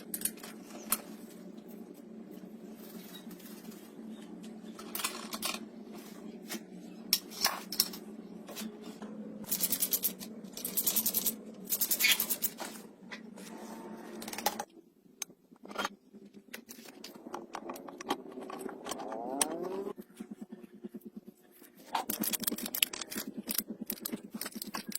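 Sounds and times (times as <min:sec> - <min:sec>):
steady low hum: 0:00.0 - 0:24.9
rapid ratchet clicking: 0:09.5 - 0:12.4.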